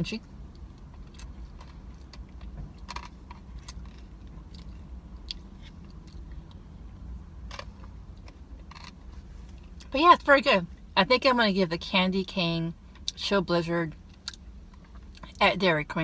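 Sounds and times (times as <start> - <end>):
low room hum: 0.0 - 16.0
person chewing crunchy candy: 0.5 - 6.6.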